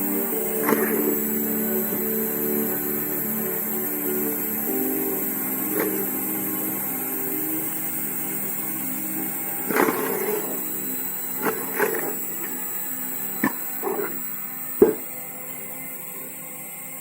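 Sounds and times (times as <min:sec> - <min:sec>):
log splitter motor humming: 0:00.0 - 0:17.0
wood splitting knocks: 0:00.6 - 0:01.3, 0:05.7 - 0:06.2, 0:09.7 - 0:10.8, 0:11.4 - 0:12.7, 0:13.4 - 0:14.2, 0:14.8 - 0:15.1.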